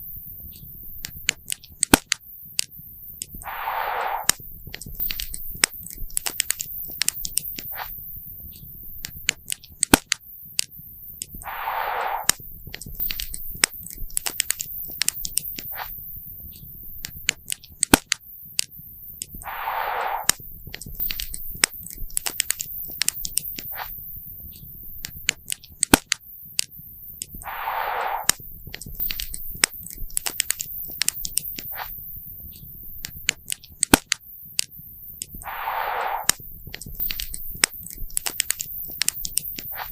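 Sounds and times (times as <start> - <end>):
fire hissing: 3.4 - 4.5, 11.4 - 12.5, 19.4 - 20.5, 27.4 - 28.6, 35.4 - 38.0.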